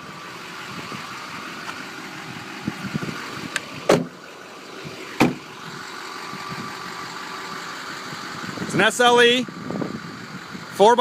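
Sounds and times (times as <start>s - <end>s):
diesel engine idling: 0.0s - 11.0s
loud thumps: 3.8s - 4.2s, 5.2s - 5.4s.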